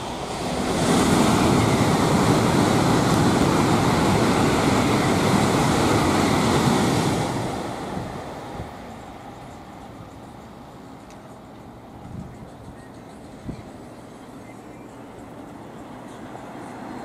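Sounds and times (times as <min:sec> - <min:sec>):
high-speed train passing: 0:00.0 - 0:17.0.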